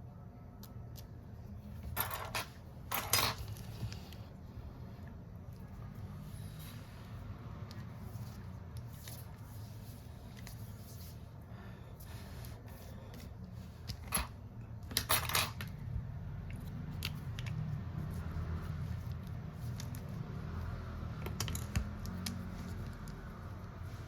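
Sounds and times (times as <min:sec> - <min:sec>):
small tools clicking and tapping: 0:21.2 - 0:23.2.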